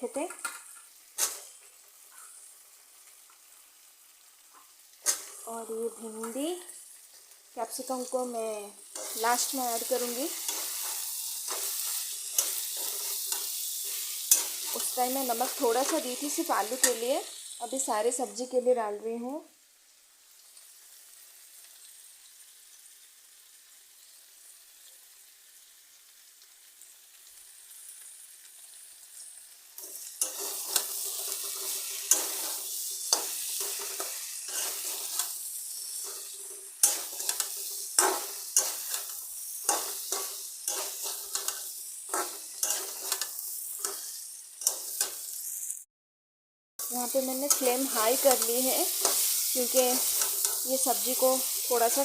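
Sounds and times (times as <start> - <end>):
vegetables sizzling in oil: 0.0 - 45.9, 46.8 - 52.0
spatula scraping a pan: 8.9 - 17.0, 29.8 - 45.6, 47.1 - 52.0.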